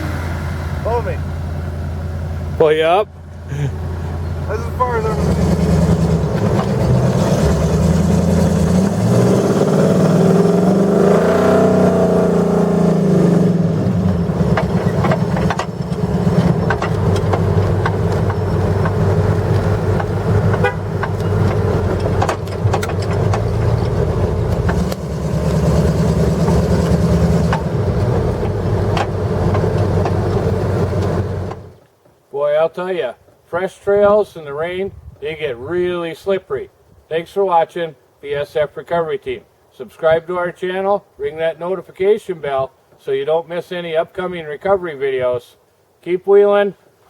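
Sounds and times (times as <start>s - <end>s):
truck engine revving: 0.0s - 31.8s
sharp knocks: 13.9s - 31.7s.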